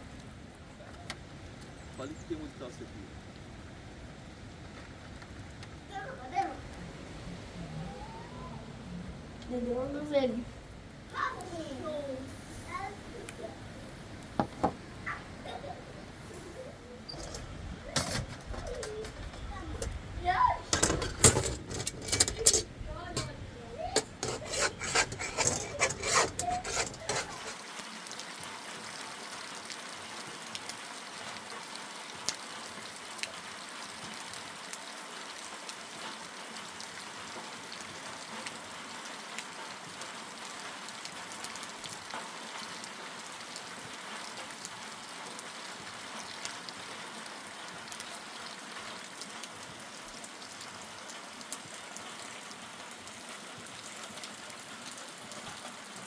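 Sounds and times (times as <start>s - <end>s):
steady rain falling: 0.0s - 24.0s, 27.3s - 56.0s
clattering knocks and clicks: 17.1s - 27.6s.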